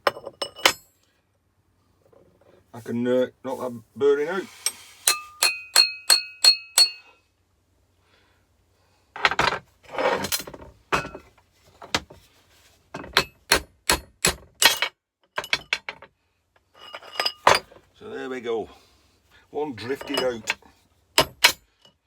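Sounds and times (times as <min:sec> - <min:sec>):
hammer striking steel drift: 0:04.6 - 0:07.1.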